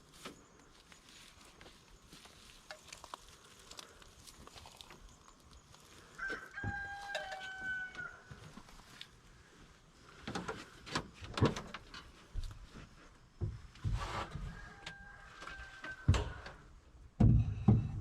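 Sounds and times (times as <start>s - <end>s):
heavy thumps: 17.1s - 18.0s.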